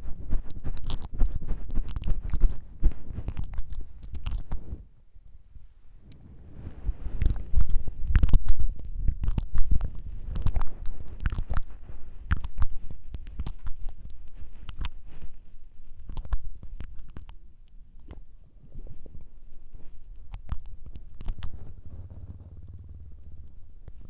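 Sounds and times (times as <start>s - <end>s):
wet tongue flutters and clicks: 0.0s - 4.7s, 6.1s - 18.2s, 19.9s - 24.0s.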